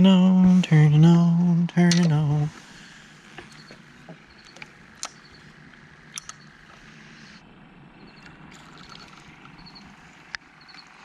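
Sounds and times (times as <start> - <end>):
faint outdoor hiss: 0.0 - 11.0
sharp clicks: 4.4 - 6.5.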